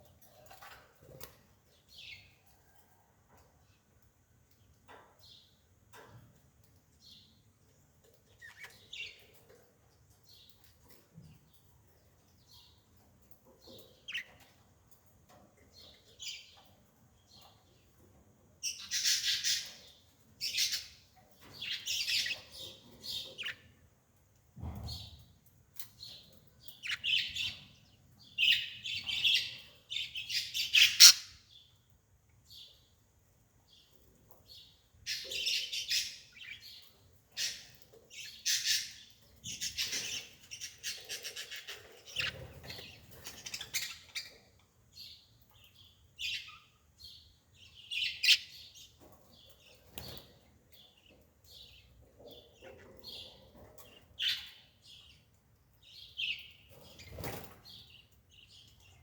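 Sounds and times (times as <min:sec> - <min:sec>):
bird chirping and squawking: 0:30.4 - 0:31.4.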